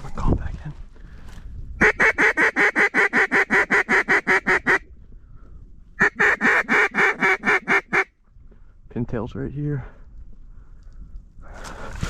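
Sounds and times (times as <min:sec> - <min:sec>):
duck call quacking: 0:01.8 - 0:04.8, 0:06.0 - 0:08.1.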